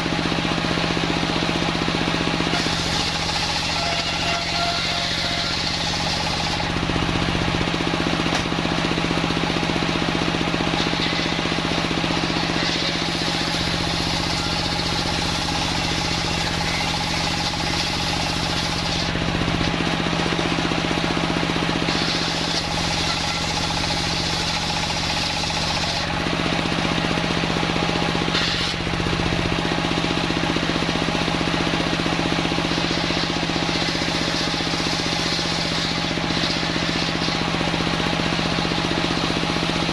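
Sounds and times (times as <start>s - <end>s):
sawmill machine drone: 0.0s - 39.9s
saw blade cutting wood: 2.4s - 8.6s, 10.6s - 20.6s, 21.7s - 27.2s, 28.0s - 29.7s, 32.0s - 39.6s.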